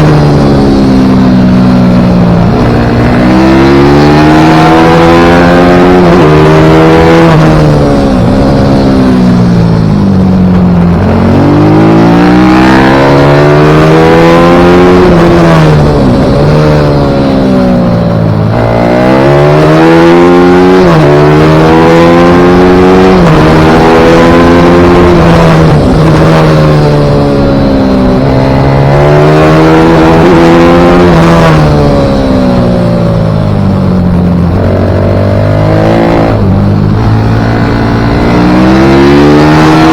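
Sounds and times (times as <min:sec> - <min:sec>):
pit bike engine revving: 0:00.0 - 0:09.8, 0:33.9 - 0:39.9.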